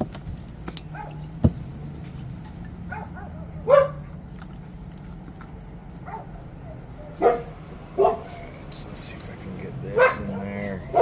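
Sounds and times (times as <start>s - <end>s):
dog barking and yipping: 0.9s - 1.3s, 2.8s - 4.1s, 6.0s - 8.6s, 9.8s - 11.0s.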